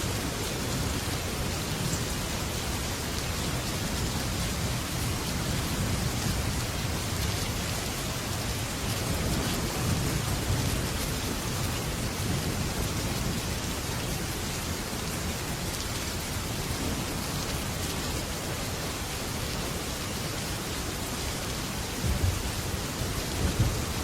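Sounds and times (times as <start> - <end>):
heavy rain on a metal roof: 0.0 - 24.0
low rumble of thunder: 3.5 - 14.6, 21.9 - 24.0.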